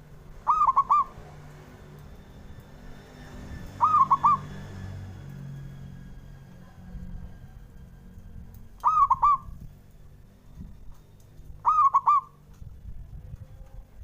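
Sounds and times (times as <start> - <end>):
dove cooing: 0.4 - 1.2, 3.8 - 4.6, 8.8 - 9.6, 11.6 - 12.4.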